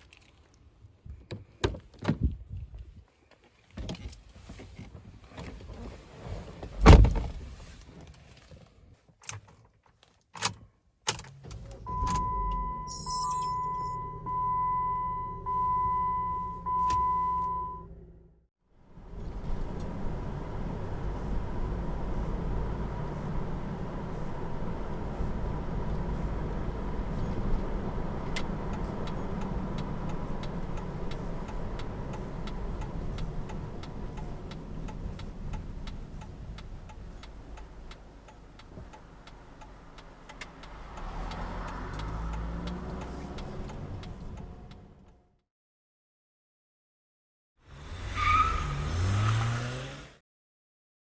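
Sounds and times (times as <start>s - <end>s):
road rumble: 17.9s - 45.2s
car engine: 18.8s - 45.2s, 47.8s - 50.2s
sharp clicks: 20.7s - 44.8s.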